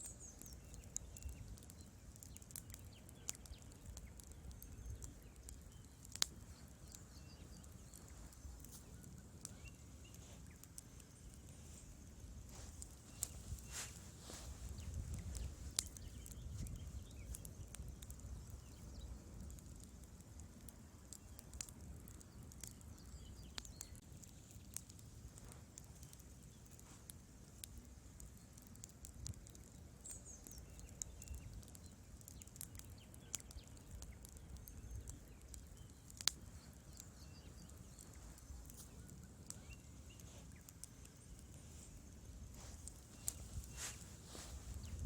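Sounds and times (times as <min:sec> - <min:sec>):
wood fire crackling: 0:00.0 - 0:45.0.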